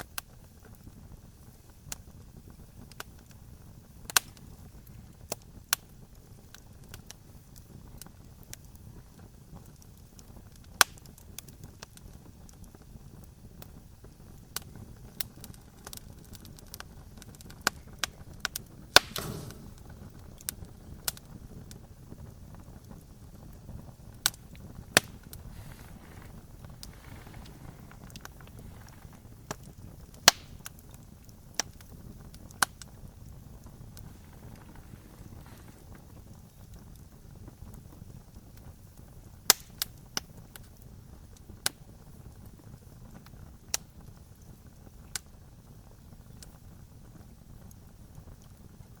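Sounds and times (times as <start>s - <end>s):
campfire crackling and popping: 0.0s - 49.0s
low rumble of flames: 0.0s - 49.0s.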